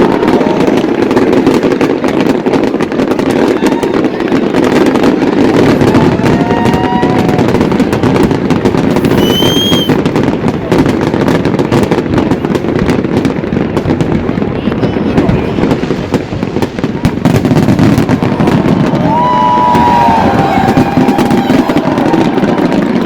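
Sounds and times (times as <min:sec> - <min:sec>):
fireworks bangs and crackling: 0:00.0 - 0:23.0
fireworks whistling: 0:00.0 - 0:23.0.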